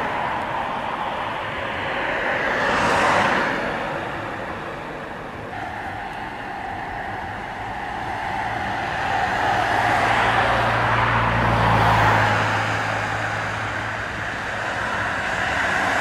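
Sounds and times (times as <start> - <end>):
vehicle passing by: 0.0 - 16.0.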